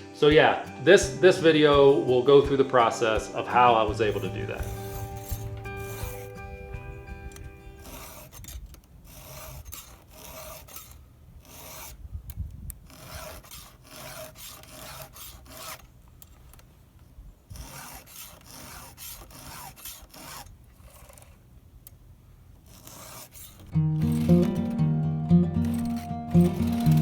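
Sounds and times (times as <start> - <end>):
hand tool scraping wood: 2.8 - 16.7, 17.4 - 21.5, 22.6 - 24.8, 25.6 - 27.0.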